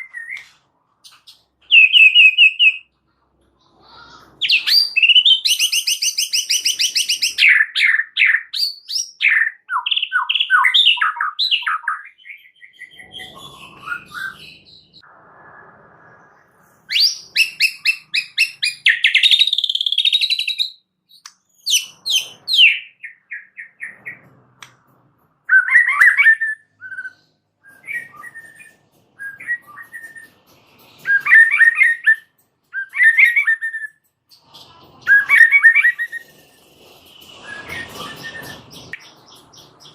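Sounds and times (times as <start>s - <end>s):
bird singing trills: 25.5s - 39.9s.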